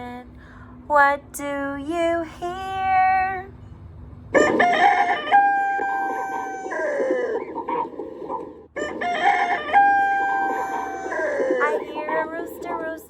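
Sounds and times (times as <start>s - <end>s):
rooster crowing: 4.4s - 7.8s, 8.8s - 11.8s.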